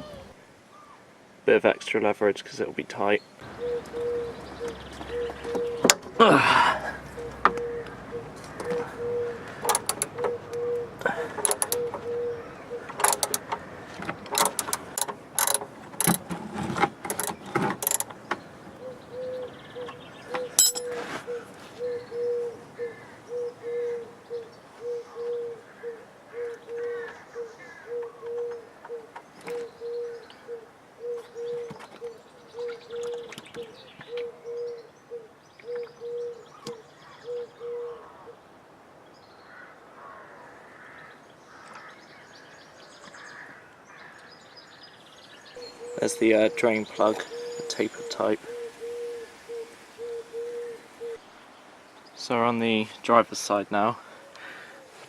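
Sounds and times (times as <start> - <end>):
metallic clicks and knocks: 9.6 - 10.4, 11.4 - 12.0, 12.9 - 18.4, 20.4 - 21.0.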